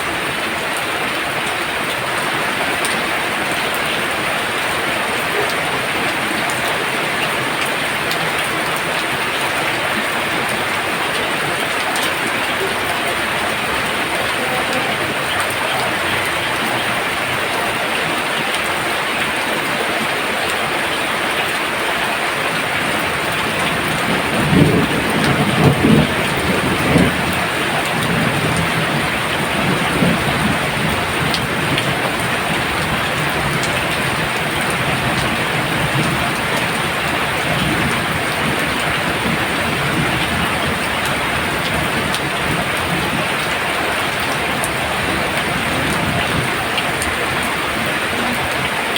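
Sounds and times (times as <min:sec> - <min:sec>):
heavy rain pouring: 0:00.0 - 0:48.9
low roll of thunder: 0:23.0 - 0:48.8.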